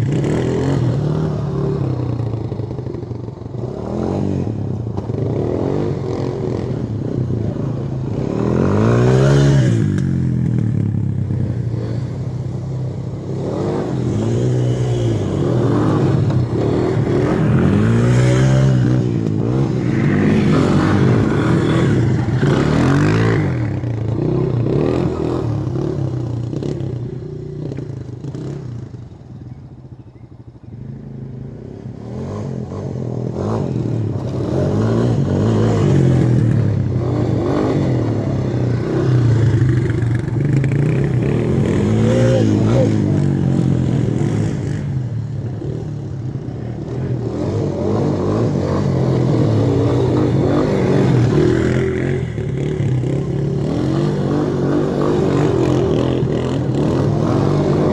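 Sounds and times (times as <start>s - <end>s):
atv engine revving: 0.0s - 29.2s, 30.8s - 57.9s.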